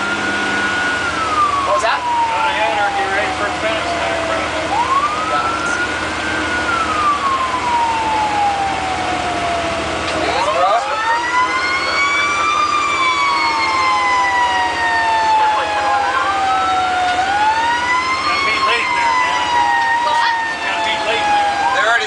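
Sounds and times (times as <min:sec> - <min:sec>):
fire truck sirens wailing: 0:00.0 - 0:22.0
low engine rumble: 0:00.0 - 0:22.0.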